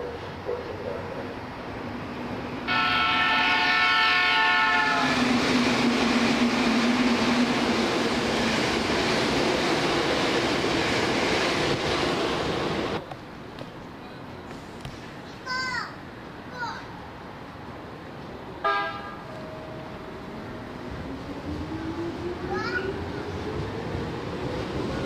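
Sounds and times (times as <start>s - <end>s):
train wheel and rail noise: 0.0s - 25.0s
train horn: 2.7s - 5.2s, 18.6s - 19.5s.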